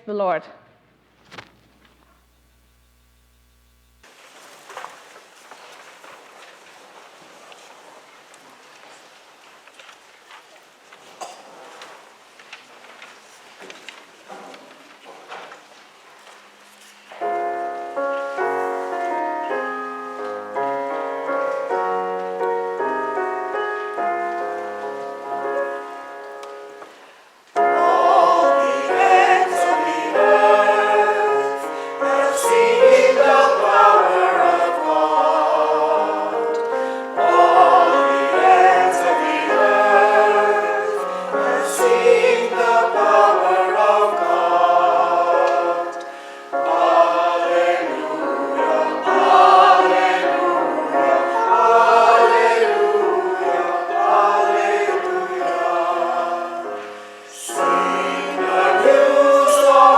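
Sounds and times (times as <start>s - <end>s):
church choir singing: 17.1s - 59.9s.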